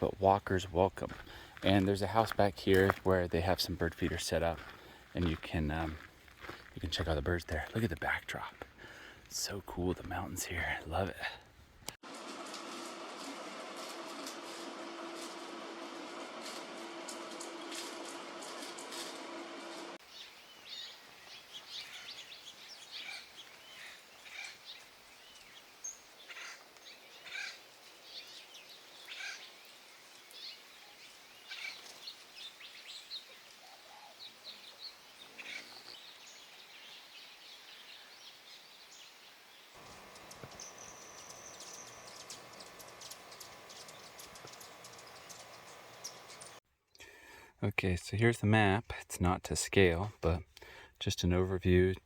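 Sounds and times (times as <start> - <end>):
small birds chirping: 20.0 - 46.6
steady hum: 39.8 - 46.6
thin high buzz: 39.8 - 46.6.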